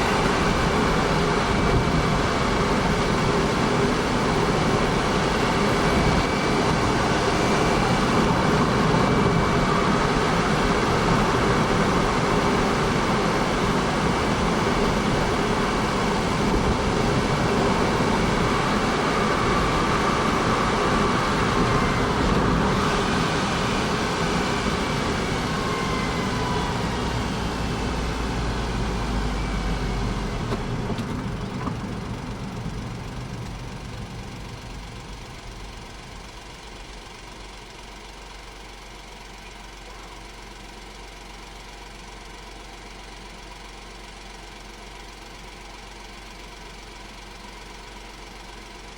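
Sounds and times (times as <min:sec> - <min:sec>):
car engine running: 0:00.0 - 0:48.9.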